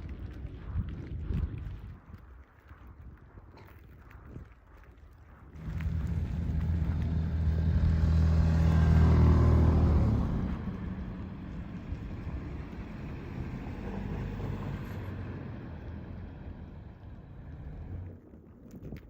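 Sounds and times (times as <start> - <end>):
traffic rumble: 0.0 - 19.0
vehicle passing by: 5.6 - 18.2.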